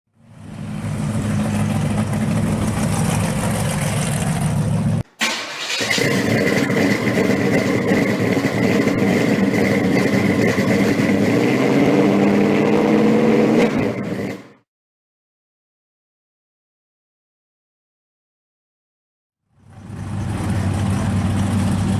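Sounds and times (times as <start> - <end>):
car engine running: 0.2 - 5.0, 5.9 - 13.2, 19.5 - 21.9.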